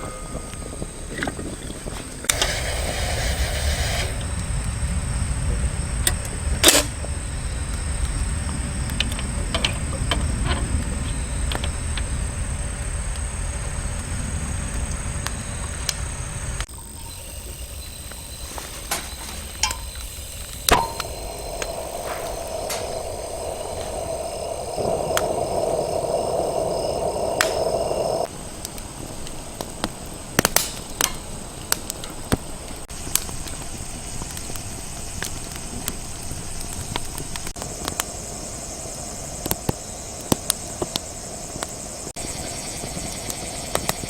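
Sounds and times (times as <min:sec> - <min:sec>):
insects trilling: 0:00.2 - 0:31.6, 0:32.9 - 0:44.0
low rumble: 0:19.5 - 0:28.3.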